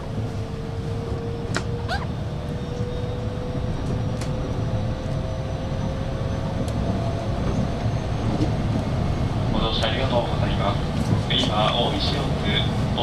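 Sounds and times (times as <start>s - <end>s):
electric train rumbling: 0.0s - 13.0s
short squeal: 1.8s - 3.1s.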